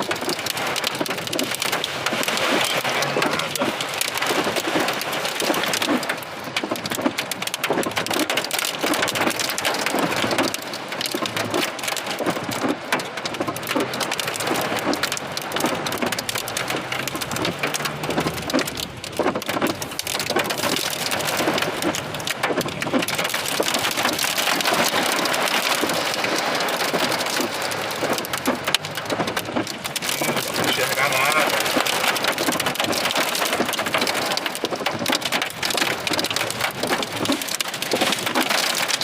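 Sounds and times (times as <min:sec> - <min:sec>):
heavy rain downpour: 0:00.0 - 0:39.0.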